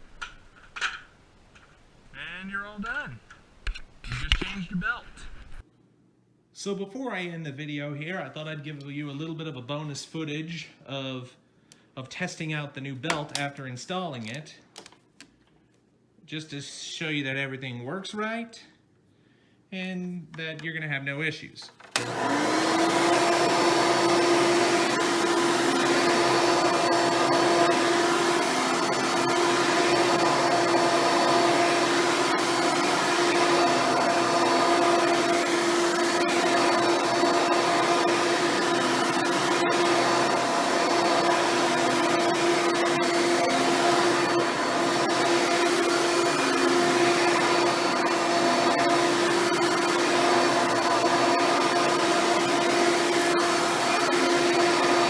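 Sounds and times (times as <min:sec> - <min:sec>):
upright vacuum cleaner running: 0:21.6 - 0:55.0.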